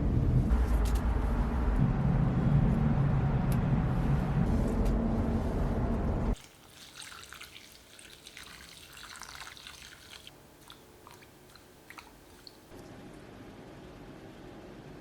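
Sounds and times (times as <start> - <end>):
faint water drips: 6.4 - 12.8.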